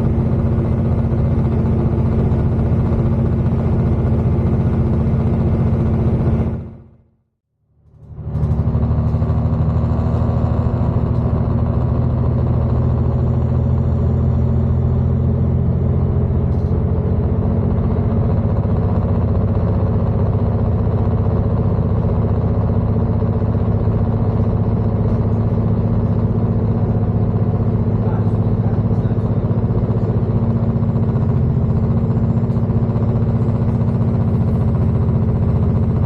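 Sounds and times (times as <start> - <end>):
diesel engine droning: 0.0 - 36.0
train running noise: 16.5 - 36.0.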